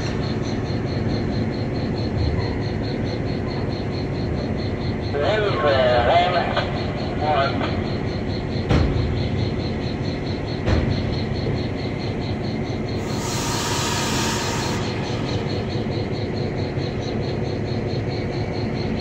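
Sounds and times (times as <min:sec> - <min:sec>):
insects chirping: 0:00.0 - 0:19.0
train rumble: 0:00.0 - 0:19.0
loud hiss: 0:13.0 - 0:15.6.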